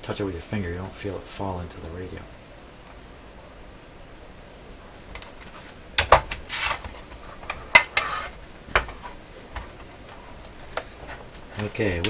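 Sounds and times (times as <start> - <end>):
antenna scraping rasps: 6.4 - 9.2.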